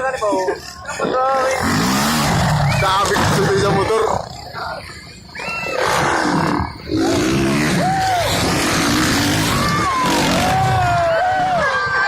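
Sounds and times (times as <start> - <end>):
dirt bikes revving: 0.0 - 12.0
voices: 0.0 - 12.0.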